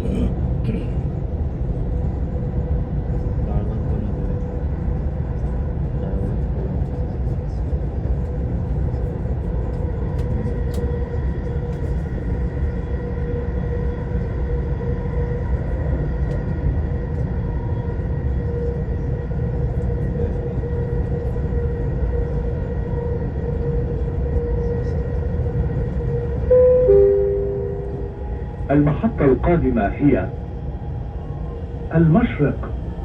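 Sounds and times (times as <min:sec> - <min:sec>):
train rumble inside carriage: 0:00.0 - 0:33.0
two-note falling chime: 0:26.5 - 0:28.2.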